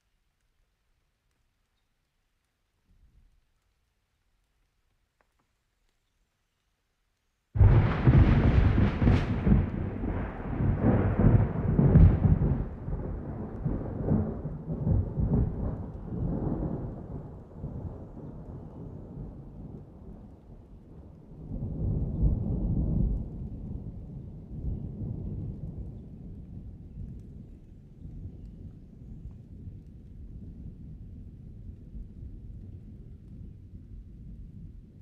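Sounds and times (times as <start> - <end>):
thunder rumbling: 7.6 - 35.0.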